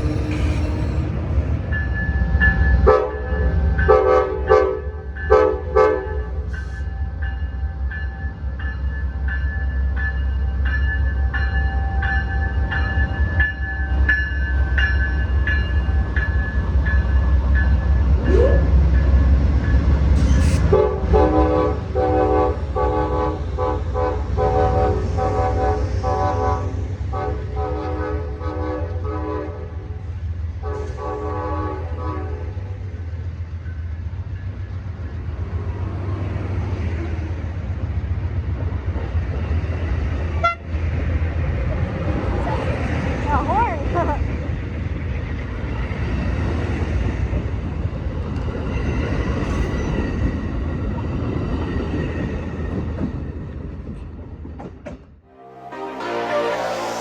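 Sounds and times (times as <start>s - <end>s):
train rumbling: 0.0s - 57.0s
locomotive air horn blasts: 20.5s - 29.8s, 30.6s - 32.6s, 40.4s - 40.6s, 55.3s - 57.0s.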